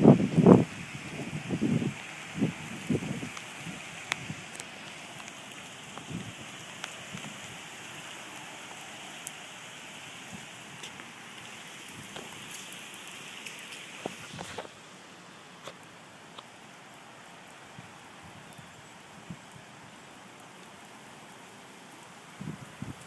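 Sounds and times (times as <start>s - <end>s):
wind noise: 0.0s - 5.3s, 5.9s - 7.7s, 17.7s - 19.8s, 22.3s - 23.0s
heavy rain: 0.0s - 23.0s.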